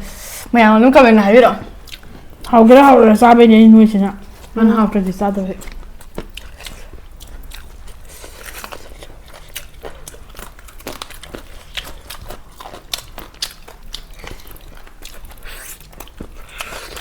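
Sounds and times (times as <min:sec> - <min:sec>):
crunching and chewing crispy food: 0:05.6 - 0:17.0.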